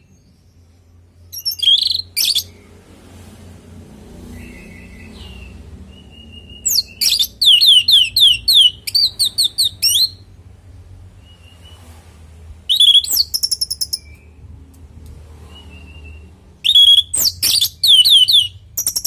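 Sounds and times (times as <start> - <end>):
bird singing rapid whistled notes: 0.0 - 2.7, 4.2 - 10.3, 11.2 - 11.9, 12.6 - 14.6, 15.5 - 19.0.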